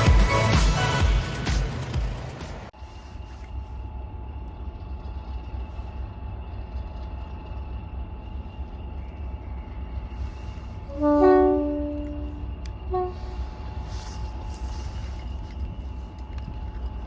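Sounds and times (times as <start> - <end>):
diesel locomotive rumbling: 0.0 - 17.0
two-tone locomotive horn: 10.9 - 13.6.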